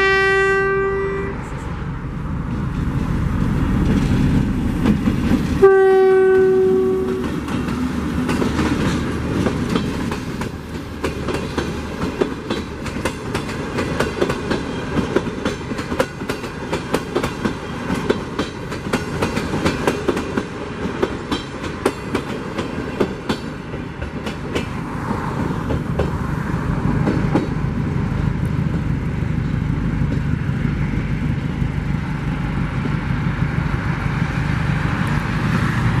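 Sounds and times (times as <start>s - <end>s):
train rumble: 0.0s - 36.0s
wheels clicking over rail joints: 6.4s - 24.8s.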